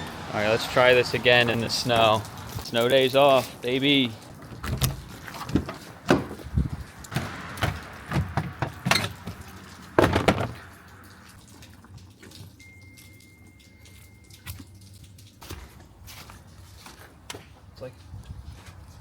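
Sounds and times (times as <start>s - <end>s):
sharp knocks and clunks: 4.4s - 6.5s, 7.1s - 10.7s.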